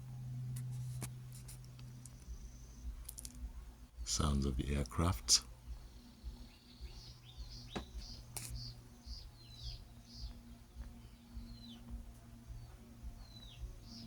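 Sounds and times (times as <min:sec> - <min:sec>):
low steady hum: 0:00.0 - 0:14.0
chicks peeping: 0:05.4 - 0:14.0.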